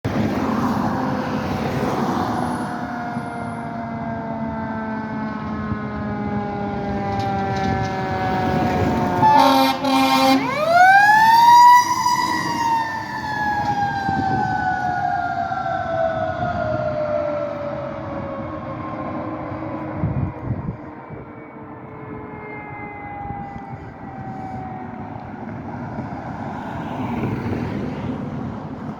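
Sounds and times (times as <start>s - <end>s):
truck engine and road noise: 0.0s - 28.9s
fire truck siren: 0.1s - 28.9s
air horn blasts: 7.6s - 11.0s.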